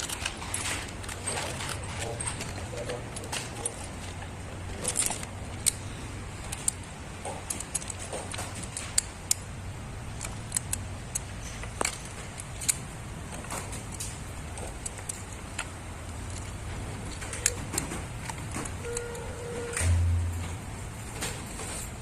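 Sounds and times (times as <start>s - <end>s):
hand tools clinking on metal: 0.0s - 9.0s
steady low hum: 0.0s - 22.0s.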